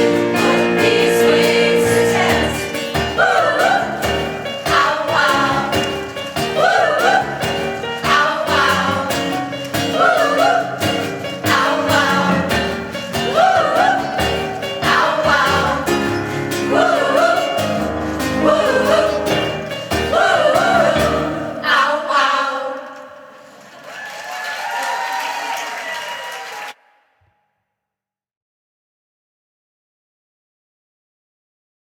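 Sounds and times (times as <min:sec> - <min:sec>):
instrumental accompaniment: 0:00.0 - 0:21.7
choir singing: 0:00.0 - 0:23.5.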